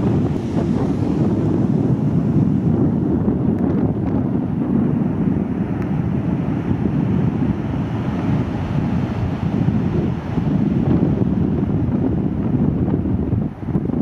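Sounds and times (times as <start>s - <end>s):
heavy surf rumbling: 0.0s - 14.0s
wind buffeting microphone: 0.0s - 14.0s.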